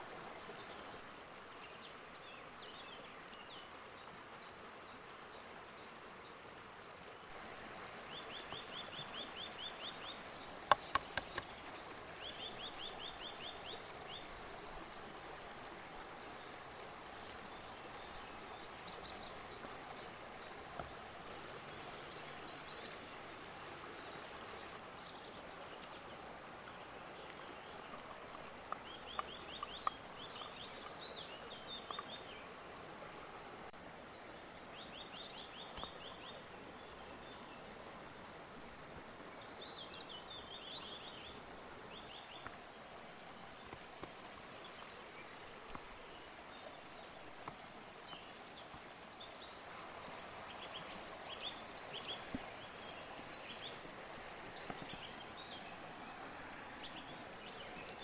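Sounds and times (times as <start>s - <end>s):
creek water rushing: 0.0s - 58.0s
faint clicks: 10.6s - 11.7s, 26.6s - 31.0s, 31.7s - 32.2s.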